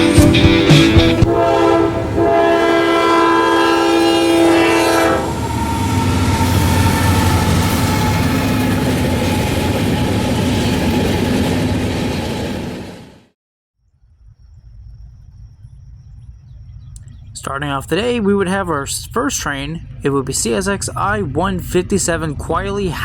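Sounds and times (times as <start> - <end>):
locomotive air horn: 0.0 - 8.9
train rumble and wheel clatter: 0.0 - 13.4, 16.8 - 23.0.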